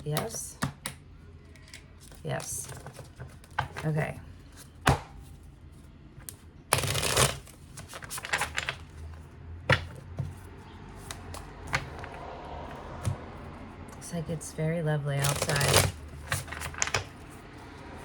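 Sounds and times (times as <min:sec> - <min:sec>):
cards riffle shuffling: 0:06.8 - 0:08.9, 0:15.2 - 0:17.4.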